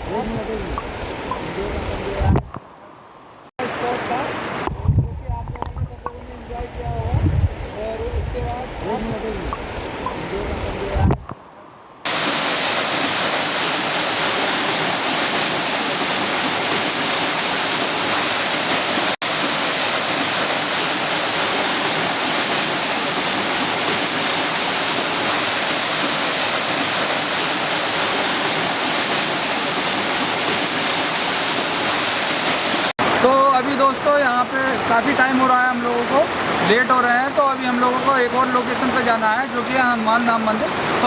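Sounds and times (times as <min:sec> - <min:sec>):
waterfall rushing and splashing: 0:03.6 - 0:04.8, 0:12.1 - 0:41.0.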